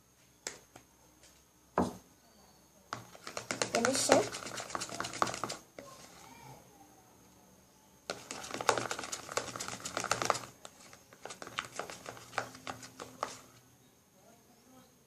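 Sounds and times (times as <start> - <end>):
slime stirring sticky clicks: 3.0 - 5.6, 8.1 - 13.4.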